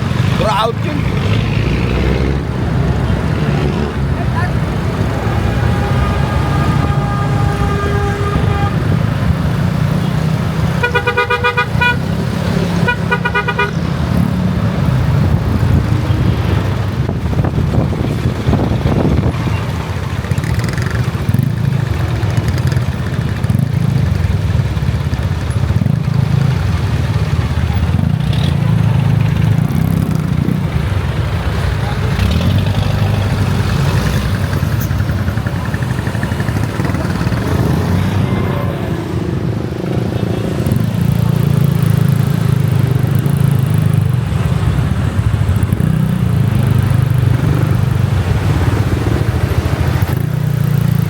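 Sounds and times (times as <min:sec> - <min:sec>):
motorcycle engine and wind rumble: 0:00.0 - 0:51.0
rapid beeping horn toots: 0:10.8 - 0:12.2, 0:12.8 - 0:13.8.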